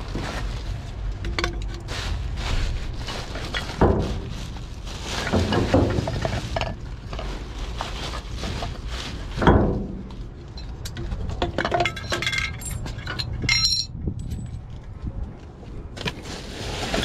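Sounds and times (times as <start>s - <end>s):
hard objects clattering: 3.0s - 14.4s.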